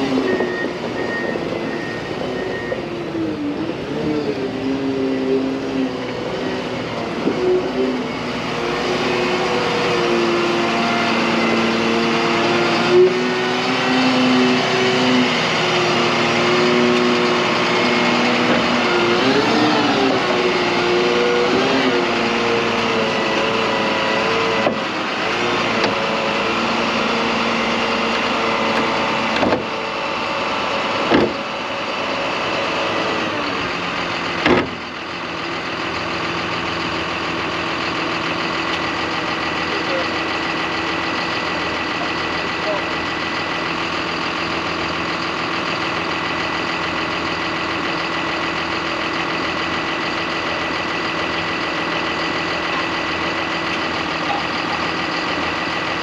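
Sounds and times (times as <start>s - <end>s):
truck diesel engine running: 0.0s - 56.0s
sharp knocks or clunks: 29.4s - 29.7s, 31.1s - 31.4s.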